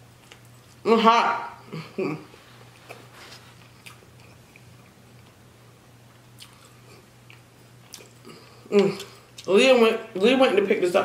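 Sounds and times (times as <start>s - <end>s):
person chewing: 0.1s - 0.9s, 1.6s - 5.4s, 6.3s - 9.6s.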